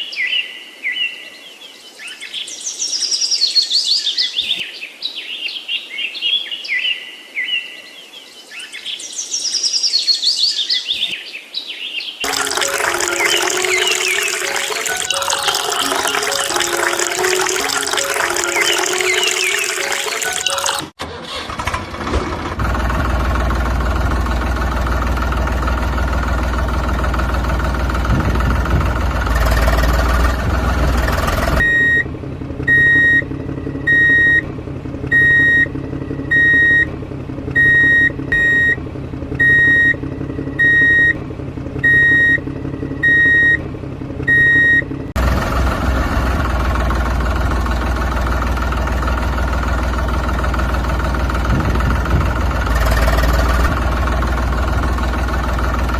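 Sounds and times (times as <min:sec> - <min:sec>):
vehicle engine running: 0:21.5 - 0:55.9
reversing alarm beeping: 0:31.6 - 0:32.1, 0:32.7 - 0:34.5, 0:35.1 - 0:36.9, 0:37.6 - 0:38.8, 0:39.4 - 0:41.2, 0:41.8 - 0:43.6, 0:44.3 - 0:45.0.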